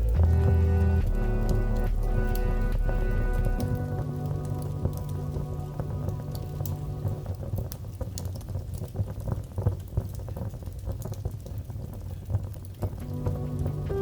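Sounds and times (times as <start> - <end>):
held musical notes: 0.0 - 7.5, 13.0 - 14.0
low rumble: 0.0 - 8.6, 13.0 - 14.0
wood fire crackling: 0.0 - 14.0.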